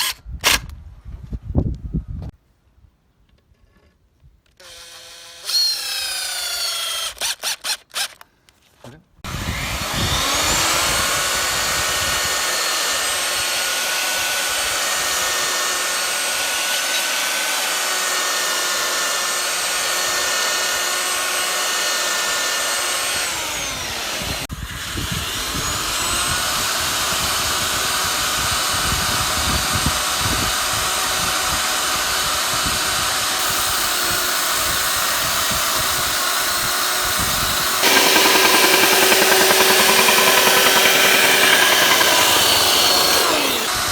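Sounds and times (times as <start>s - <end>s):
electric power tool running: 9.3s - 15.0s, 33.4s - 43.9s.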